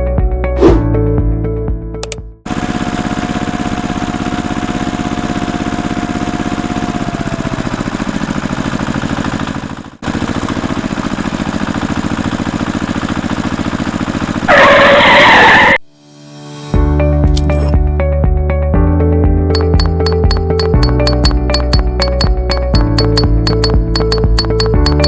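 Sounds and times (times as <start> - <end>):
small tractor engine idling: 2.0 - 14.9, 19.6 - 25.0.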